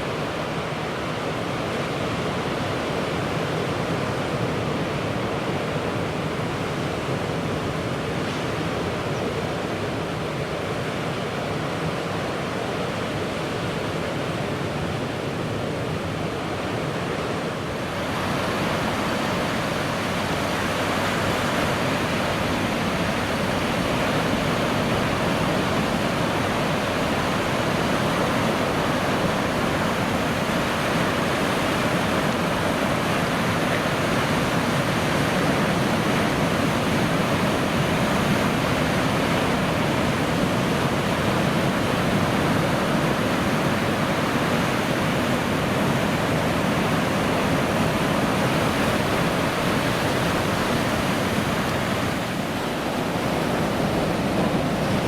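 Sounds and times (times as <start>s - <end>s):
ocean waves breaking: 12.9s - 55.0s.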